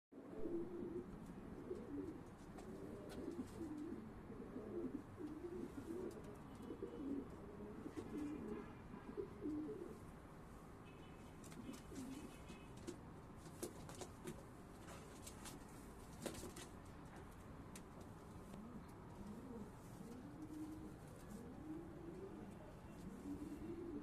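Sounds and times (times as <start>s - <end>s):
pigeons cooing: 0.2s - 10.0s, 11.5s - 12.7s, 18.5s - 24.0s.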